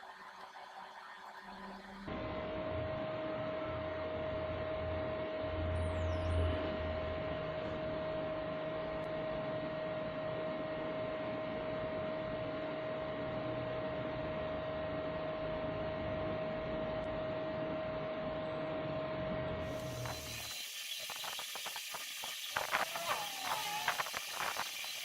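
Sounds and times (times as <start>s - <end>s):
laser engraver whining: 19.6s - 25.0s.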